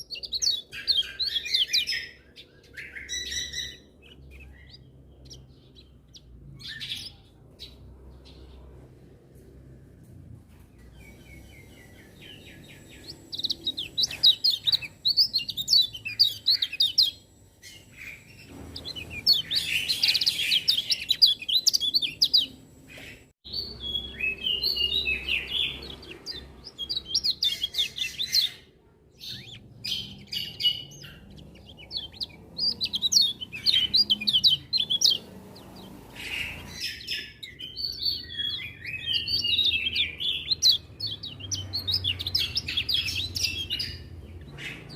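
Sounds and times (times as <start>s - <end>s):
bird twittering song: 0.0s - 9.0s, 10.7s - 44.9s.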